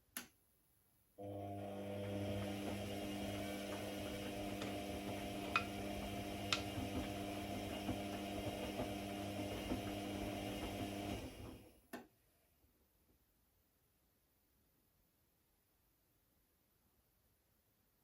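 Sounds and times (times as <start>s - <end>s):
machine humming and winding down: 1.2s - 11.5s.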